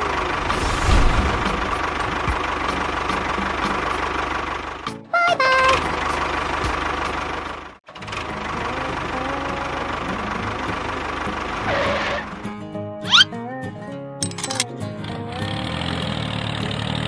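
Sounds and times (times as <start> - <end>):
short pitched sound: 0.3 - 2.4.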